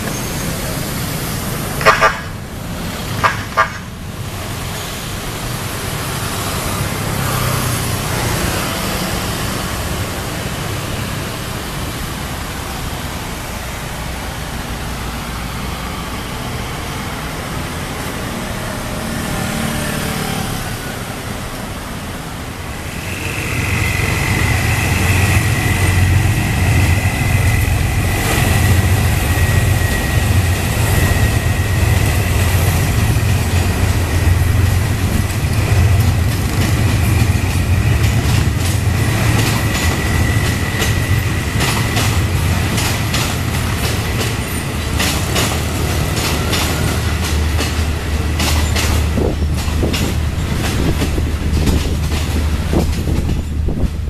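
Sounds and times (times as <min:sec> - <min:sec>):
train rumbling: 0:00.0 - 0:54.0
wheels clacking over rail joints: 0:22.4 - 0:54.0
long high squeal: 0:22.8 - 0:32.8.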